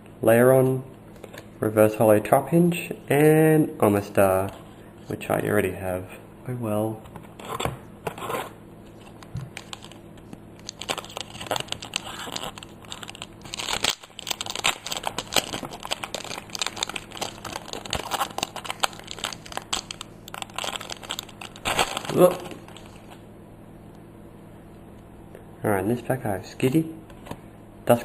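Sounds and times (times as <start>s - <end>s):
foil wrapper crinkling and tearing: 8.9s - 23.2s.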